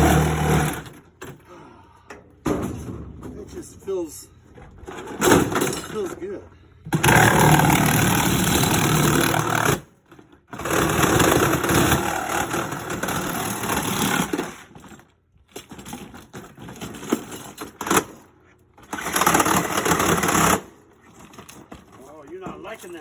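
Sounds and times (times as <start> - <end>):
power saw cutting metal: 0.0 - 1.0, 7.0 - 9.8, 10.6 - 14.6.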